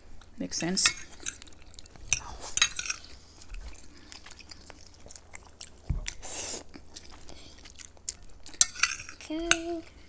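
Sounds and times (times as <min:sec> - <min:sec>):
chewing and biting food: 0:01.0 - 0:09.3
thump: 0:05.9 - 0:06.1.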